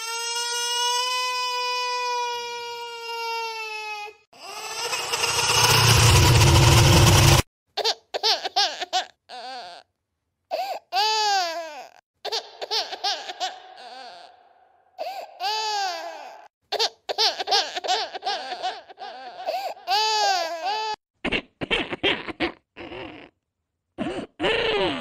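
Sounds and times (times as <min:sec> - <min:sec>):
baby sobbing cries: 0:00.0 - 0:05.4, 0:07.8 - 0:09.9, 0:10.5 - 0:21.0
baby wailing: 0:00.0 - 0:06.1, 0:07.8 - 0:09.9, 0:10.5 - 0:21.0.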